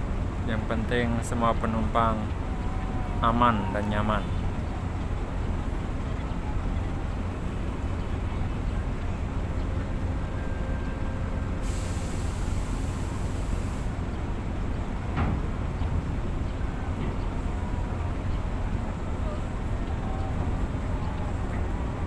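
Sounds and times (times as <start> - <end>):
diesel truck engines idling: 0.0 - 22.0
air brakes hissing: 11.4 - 14.1.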